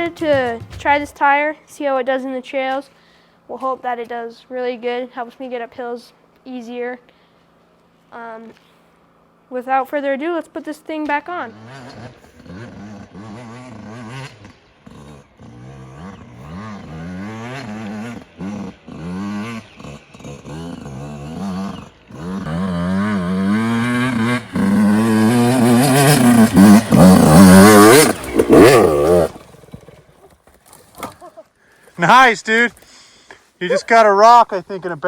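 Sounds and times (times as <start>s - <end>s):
dirt bike engine revving: 11.1s - 30.1s.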